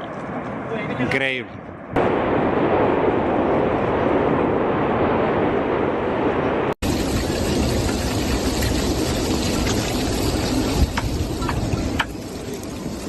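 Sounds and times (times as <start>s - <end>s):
volcanic eruption roaring: 1.8s - 13.0s.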